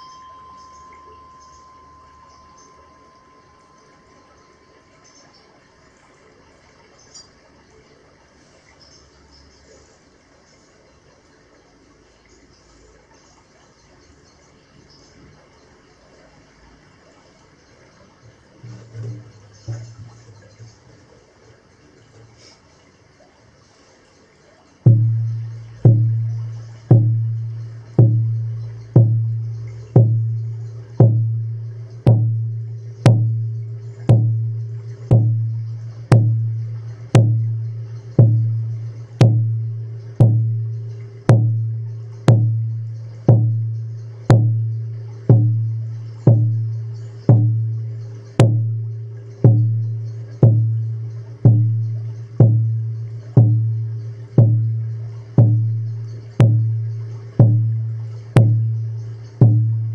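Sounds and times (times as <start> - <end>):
deep drum beats: 18.6 - 20.2, 24.9 - 59.9.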